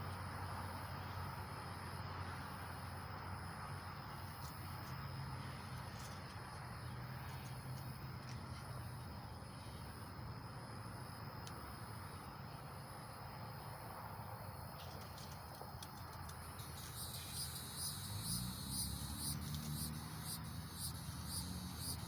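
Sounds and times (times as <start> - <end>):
crickets trilling: 0.1 - 22.0
quick repeated chirps: 16.4 - 22.0.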